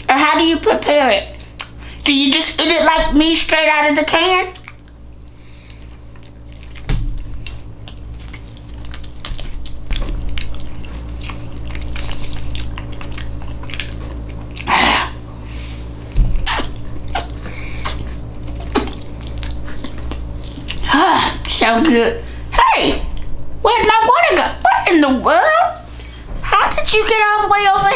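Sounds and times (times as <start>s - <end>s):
steady low hum: 0.0s - 27.9s
chewing with wet mouth clicks: 1.5s - 1.8s, 4.5s - 14.8s, 16.4s - 20.8s.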